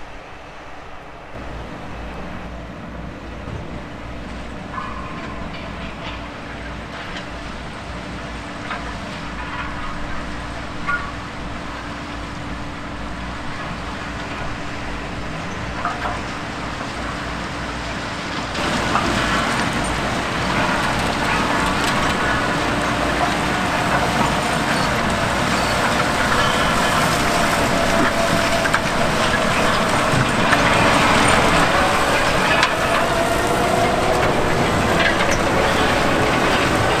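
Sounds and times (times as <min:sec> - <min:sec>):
diesel engine drone: 0:01.4 - 0:03.2, 0:18.6 - 0:37.0.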